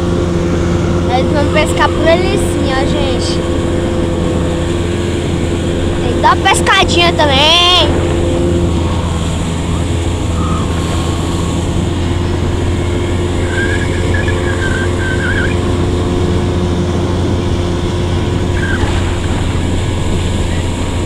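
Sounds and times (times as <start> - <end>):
outboard motor running: 0.0 - 21.0
water noise: 0.0 - 21.0
wind noise: 0.3 - 21.0
wavering high-pitched sound: 5.7 - 16.1.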